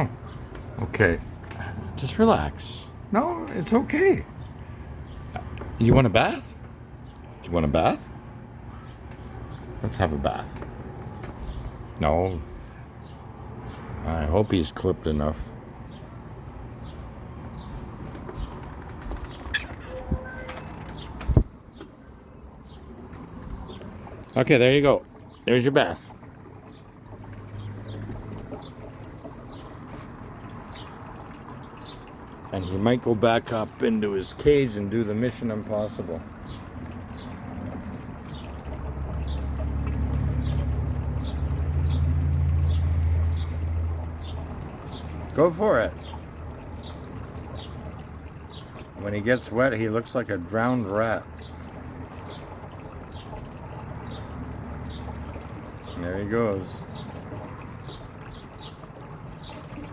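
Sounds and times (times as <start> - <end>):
water running and trickling: 9.2 - 59.9
small bird chirping: 16.8 - 22.9.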